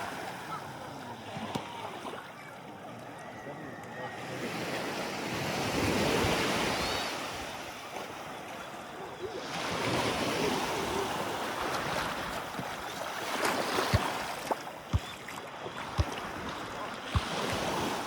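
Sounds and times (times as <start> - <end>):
sea water washing in shallows: 9.2 - 18.0.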